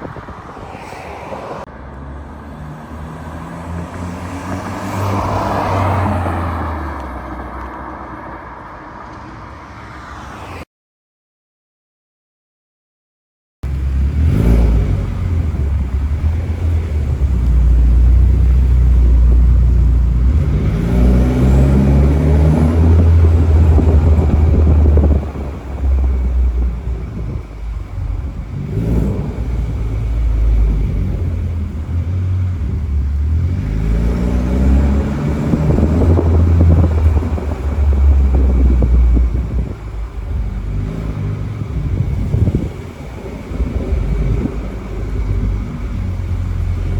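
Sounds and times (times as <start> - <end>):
car exhaust low rumble: 13.6 - 46.9.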